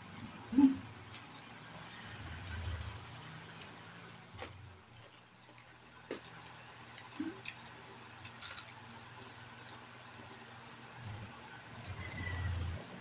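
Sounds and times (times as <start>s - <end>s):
chewing crispy fritter: 0.9s - 2.2s, 3.5s - 12.4s.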